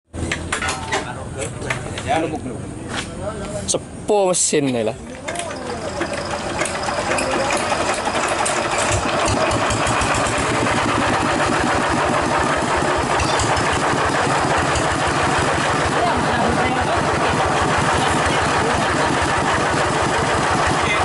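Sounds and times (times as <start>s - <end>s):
hand tractor engine chugging: 5.1s - 21.0s.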